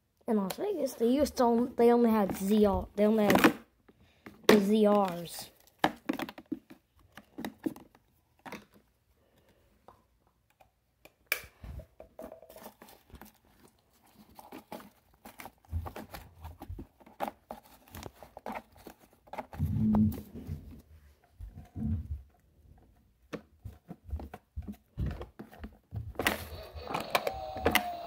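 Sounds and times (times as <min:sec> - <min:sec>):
plastic toy trucks clicking: 0:25.2 - 0:28.0.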